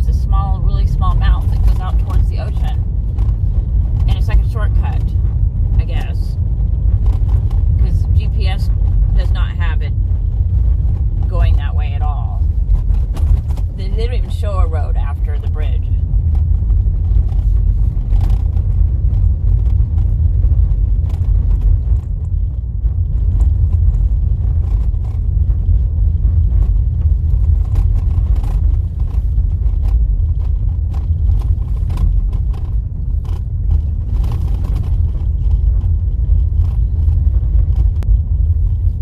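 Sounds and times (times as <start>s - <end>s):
car rattling over bumps: 0.0s - 39.0s
tyres rumbling on dirt road: 0.0s - 39.0s.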